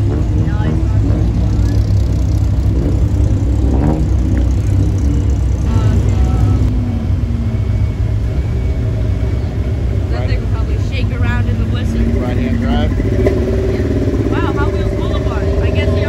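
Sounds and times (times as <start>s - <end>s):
car exhaust rumble: 0.0s - 16.0s.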